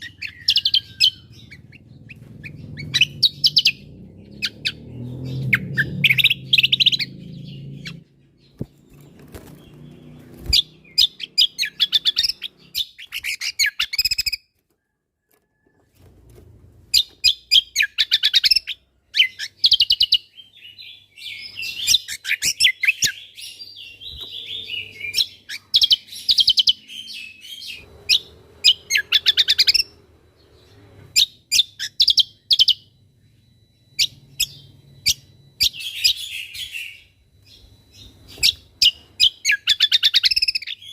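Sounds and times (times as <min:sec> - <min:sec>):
bird chirps and trills: 0:00.0 - 0:15.6, 0:16.9 - 0:40.9.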